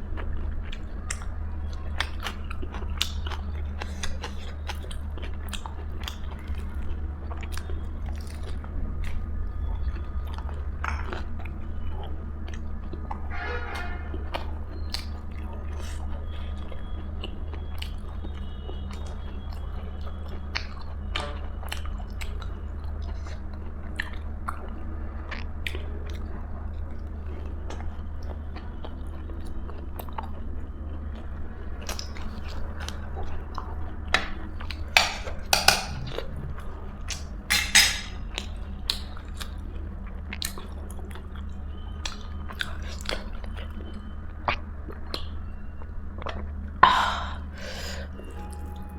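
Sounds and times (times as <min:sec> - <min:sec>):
low hum: 0:31.4 - 0:38.6.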